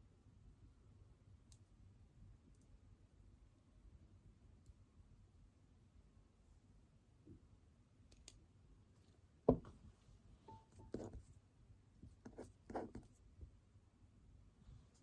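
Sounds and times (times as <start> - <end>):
knocks and clicks on a desk: 9.5 - 9.8.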